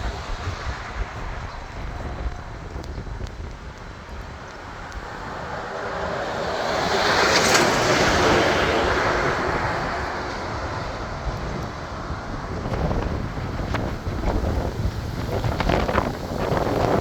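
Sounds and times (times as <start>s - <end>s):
wind rumble on microphone: 0.0s - 17.0s
vehicle passing by: 5.1s - 13.6s.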